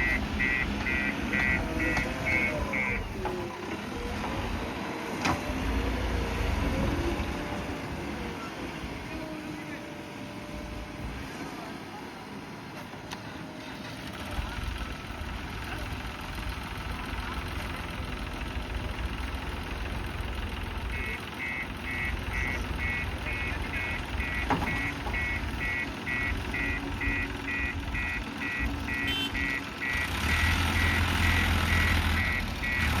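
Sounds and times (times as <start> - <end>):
reversing alarm beeping: 0.0 - 3.2, 20.9 - 33.0
diesel engine running: 0.0 - 33.0.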